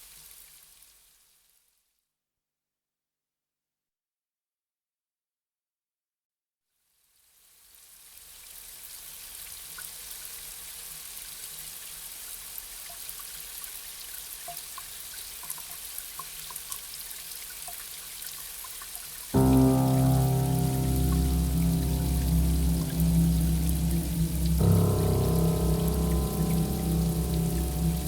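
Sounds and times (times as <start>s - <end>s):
gentle rain: 12.9s - 28.0s
music: 19.4s - 28.0s.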